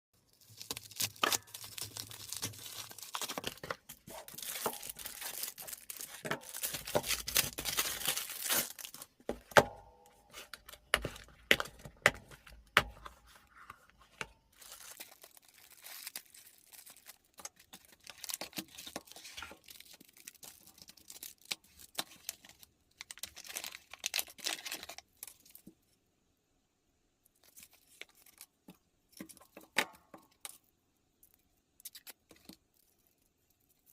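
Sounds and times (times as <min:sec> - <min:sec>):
packaging tearing and crinkling: 0:00.2 - 0:09.2, 0:14.5 - 0:25.5.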